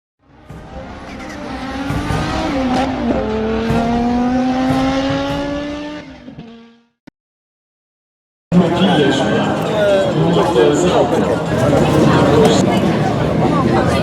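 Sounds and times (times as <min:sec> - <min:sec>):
rally car accelerating past: 0:00.3 - 0:06.8.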